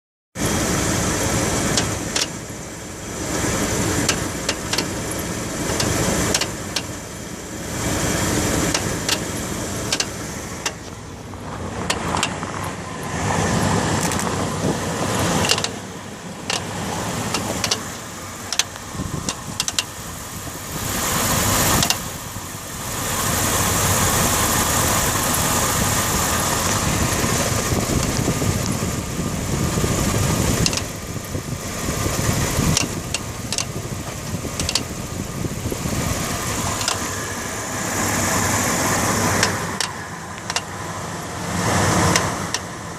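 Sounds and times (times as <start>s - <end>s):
truck engine running: 0.4s - 42.9s
sharp engine clicks: 1.5s - 2.5s, 3.6s - 7.1s, 8.4s - 11.0s, 11.8s - 12.8s, 15.2s - 20.0s, 21.5s - 22.3s, 24.9s - 40.9s, 41.7s - 42.9s.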